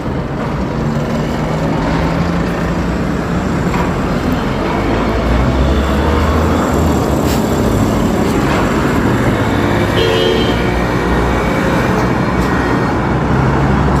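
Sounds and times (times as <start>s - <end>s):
vehicle rumble and rush: 0.0s - 14.0s
short horn-like tone: 10.0s - 10.6s.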